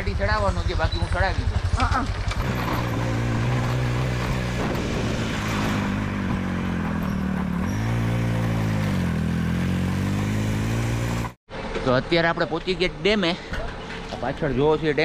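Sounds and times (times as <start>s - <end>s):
vehicle engine running under load: 0.0s - 11.7s.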